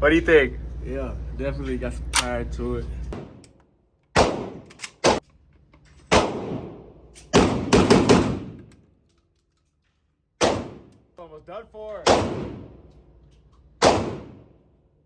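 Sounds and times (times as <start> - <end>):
gunshots echoing: 4.2 - 5.2, 6.1 - 8.7, 10.4 - 10.9, 12.0 - 12.8, 13.8 - 14.6.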